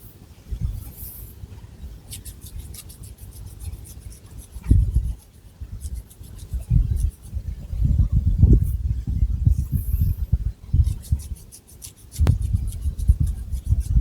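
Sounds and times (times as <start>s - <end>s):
fingernails scratching hair: 2.1s - 7.4s, 10.8s - 14.0s
dull low rubbing: 12.1s - 14.0s.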